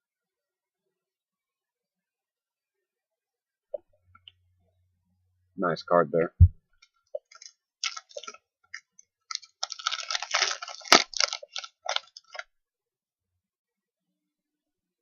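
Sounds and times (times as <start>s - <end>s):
plastic packaging crinkling: 7.2s - 12.5s.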